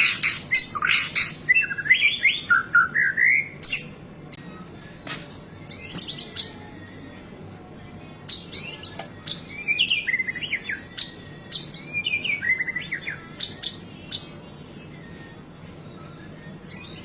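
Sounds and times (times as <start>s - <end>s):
songbird singing varied phrases: 0.0s - 4.4s, 5.6s - 6.9s, 8.1s - 15.0s, 16.1s - 17.0s.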